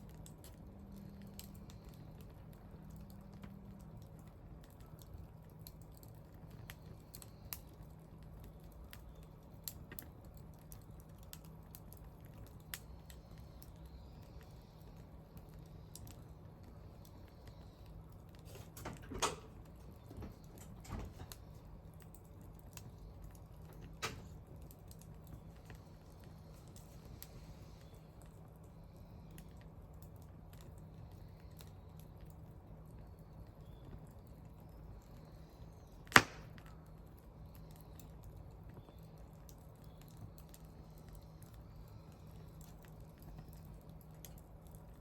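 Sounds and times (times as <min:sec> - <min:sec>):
faint low hum: 0:00.0 - 0:45.0
wood fire crackling: 0:00.0 - 0:45.0.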